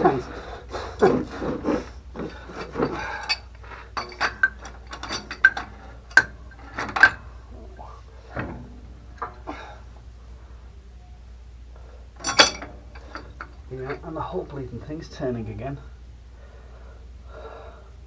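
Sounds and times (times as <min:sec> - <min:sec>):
wrench clinking on metal pipe: 0:02.2 - 0:07.3, 0:12.2 - 0:14.1
sharp ringing metal clinks: 0:12.2 - 0:14.1.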